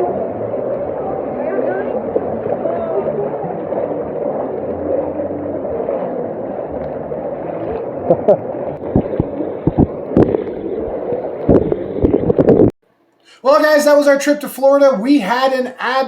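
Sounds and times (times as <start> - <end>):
floodwater sloshing and gurgling: 0.0 - 12.7
water splashes: 0.0 - 12.7.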